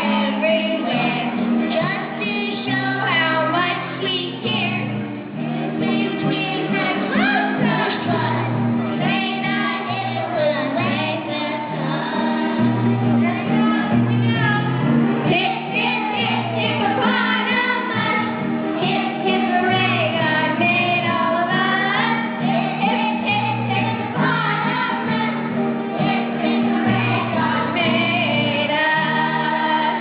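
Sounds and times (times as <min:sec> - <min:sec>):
instrumental backing music: 0:00.0 - 0:30.0
person singing: 0:05.6 - 0:13.5, 0:15.3 - 0:30.0.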